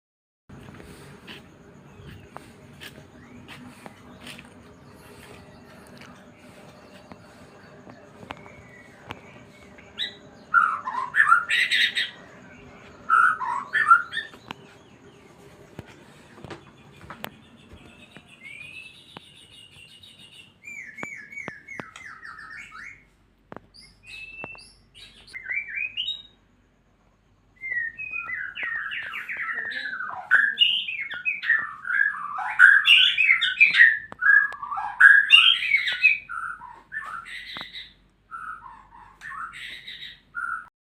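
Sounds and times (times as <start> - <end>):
bird singing whistled notes: 6.4 - 15.2, 17.3 - 23.1, 23.7 - 26.4, 27.5 - 40.7.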